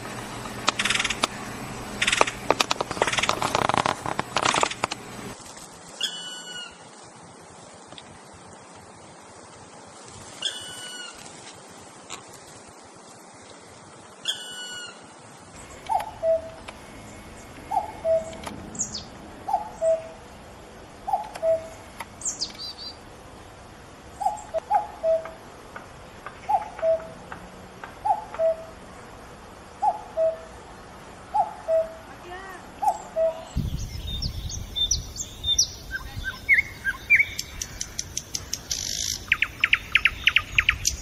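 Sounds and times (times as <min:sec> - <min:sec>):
short high bird chirps: 0:32.8 - 0:41.0.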